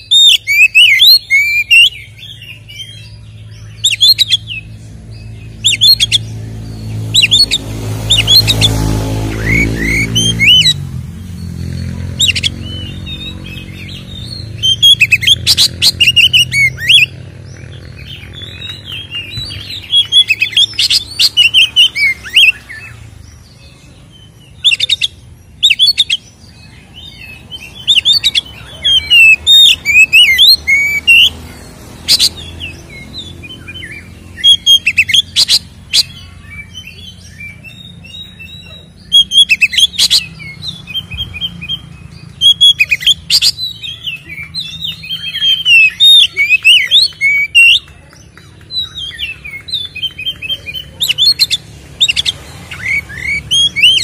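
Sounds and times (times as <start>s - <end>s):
magpie-robin song: 0.0s - 54.0s
harsh bird call bursts: 6.9s - 23.2s, 24.5s - 47.8s.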